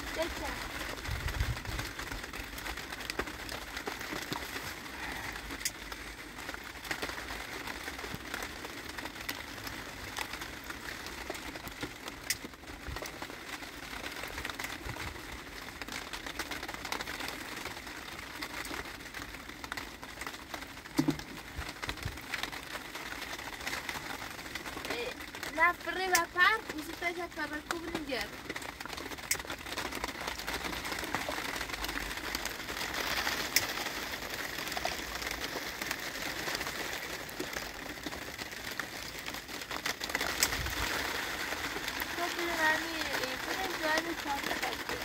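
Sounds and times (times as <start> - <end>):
rain on a roof: 0.0 - 45.0.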